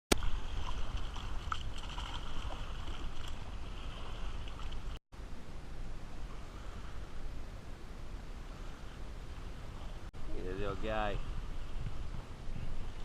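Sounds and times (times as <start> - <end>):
wind rumbling on microphone: 0.1 - 13.0.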